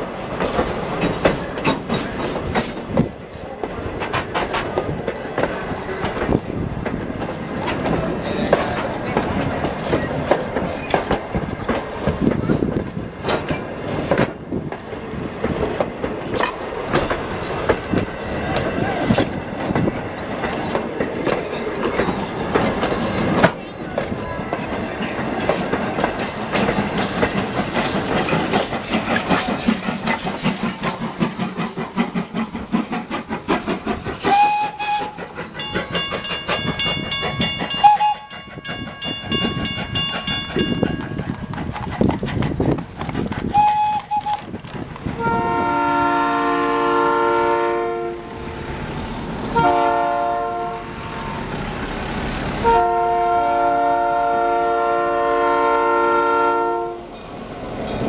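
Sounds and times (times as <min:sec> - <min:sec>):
coaches clattering over rail joints: 0:00.0 - 0:45.5, 0:57.0 - 0:58.0
diesel locomotive horn: 0:34.2 - 0:35.2, 0:37.8 - 0:38.3, 0:43.5 - 0:44.4, 0:45.1 - 0:48.6, 0:49.5 - 0:51.5, 0:52.6 - 0:57.2.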